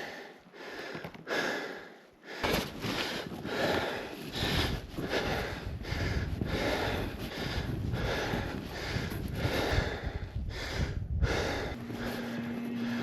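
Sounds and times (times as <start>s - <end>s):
person breathing hard: 0.0s - 13.0s
footsteps in snow: 2.4s - 10.0s, 11.8s - 13.0s.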